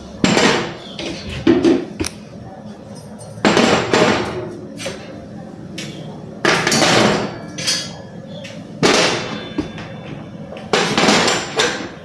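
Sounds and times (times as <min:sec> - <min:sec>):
kitchen items clattering: 0:05.8 - 0:12.0.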